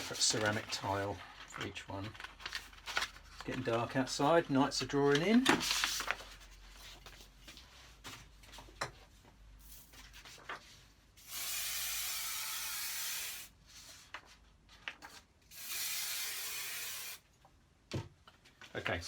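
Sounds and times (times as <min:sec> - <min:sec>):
aerosol spray can hissing: 0:11.3 - 0:13.5, 0:15.6 - 0:17.2.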